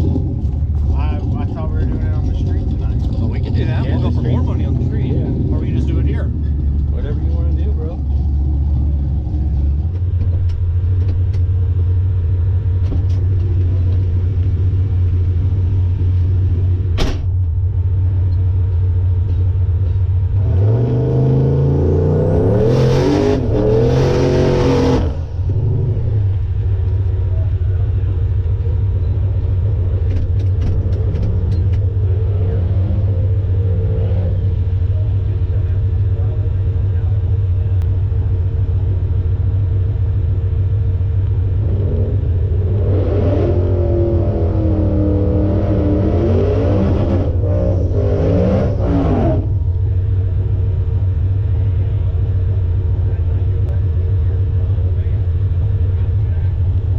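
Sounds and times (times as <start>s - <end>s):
engine revving: 0.0s - 10.1s, 20.3s - 27.1s, 29.6s - 36.4s, 41.5s - 49.8s
car engine idling: 0.0s - 46.4s, 47.2s - 56.9s.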